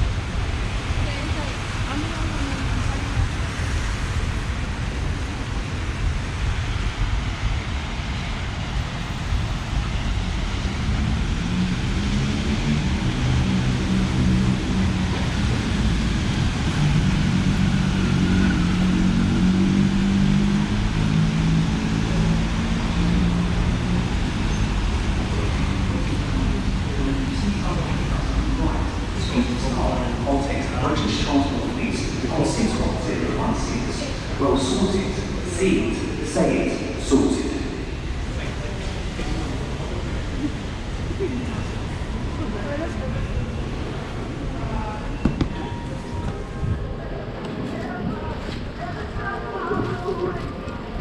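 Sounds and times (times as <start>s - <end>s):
large engine humming close by: 0.0s - 51.0s
passing vehicles on wet road: 0.0s - 51.0s.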